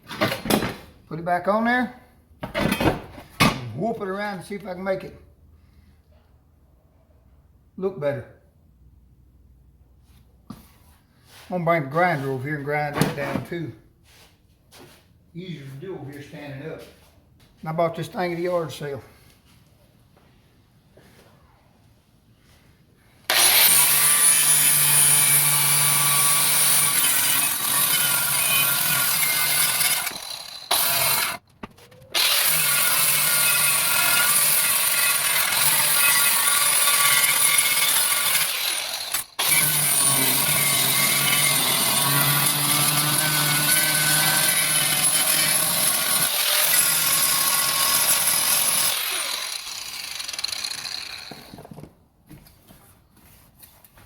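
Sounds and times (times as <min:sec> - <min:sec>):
electric grinder grinding steel: 0:23.3 - 0:31.4, 0:32.2 - 0:51.7.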